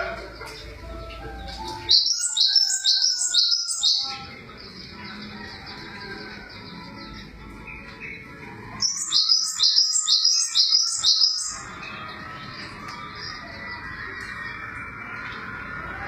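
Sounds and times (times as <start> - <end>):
songbird singing high sliding notes: 1.0 - 5.2, 8.8 - 16.0.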